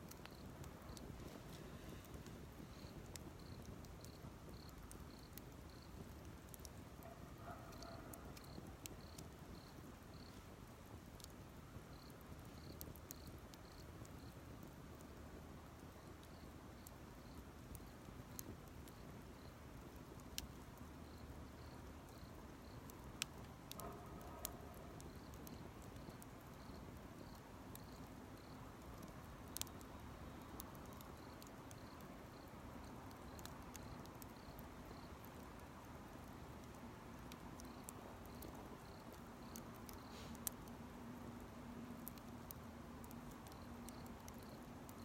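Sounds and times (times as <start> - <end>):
campfire crackles: 0.0 - 45.0
insect chirps: 2.7 - 6.0, 7.8 - 10.4, 21.0 - 22.9, 33.2 - 35.2, 37.6 - 40.2, 43.5 - 45.0.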